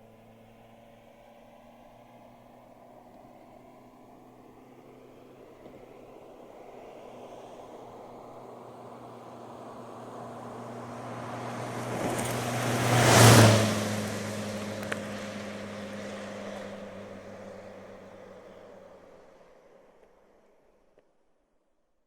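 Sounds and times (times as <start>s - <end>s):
car driving past: 7.1s - 19.3s.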